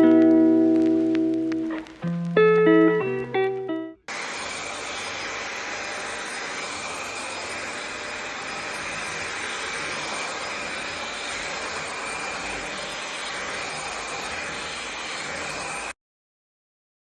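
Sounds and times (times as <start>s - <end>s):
vacuum cleaner running: 4.1s - 16.0s.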